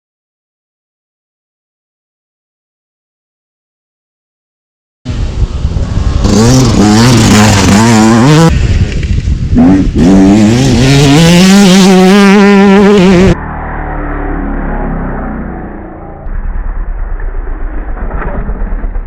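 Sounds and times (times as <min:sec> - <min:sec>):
motocross bike engine revving: 0:05.8 - 0:16.2.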